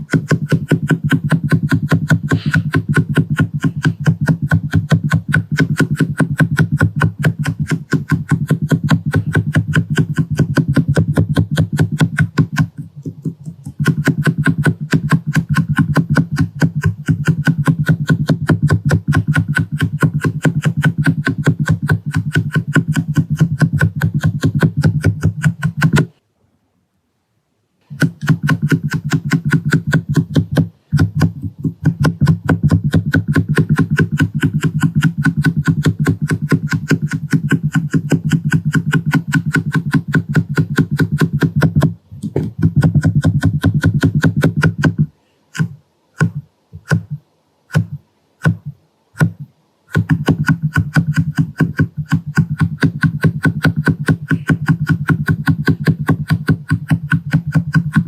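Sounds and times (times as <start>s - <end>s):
rapid tapping on microphone: 0.0s - 26.2s, 27.9s - 58.0s.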